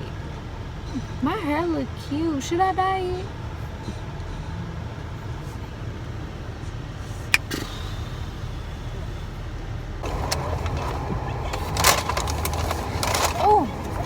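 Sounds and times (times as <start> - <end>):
car cabin rumble: 7.0 - 14.0
rustling: 10.0 - 14.0.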